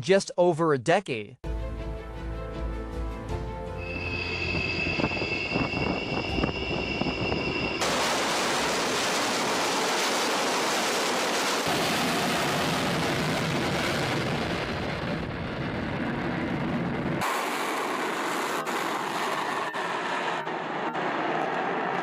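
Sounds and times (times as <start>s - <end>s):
music: 1.4s - 6.7s
steady rushing noise: 3.9s - 22.0s.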